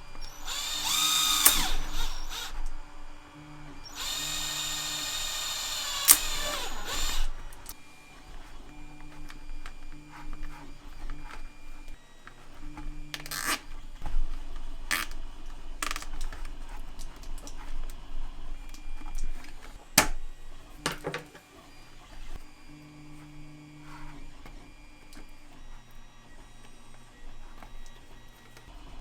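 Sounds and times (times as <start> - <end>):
small motor humming: 0.0 - 17.0.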